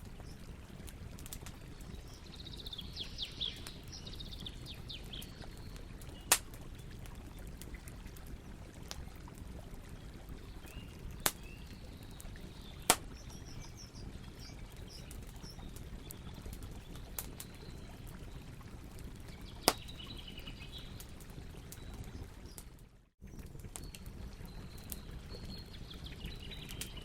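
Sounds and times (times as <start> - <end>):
campfire burning: 0.0 - 27.0
birds chirping: 1.6 - 7.4, 10.6 - 18.5, 19.3 - 22.6
wood popping: 6.3 - 6.6.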